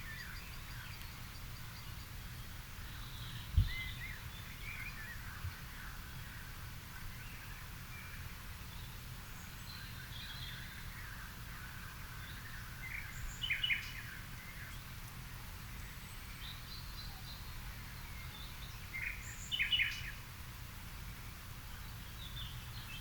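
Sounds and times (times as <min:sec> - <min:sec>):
garden birds chirping: 0:00.0 - 0:23.0.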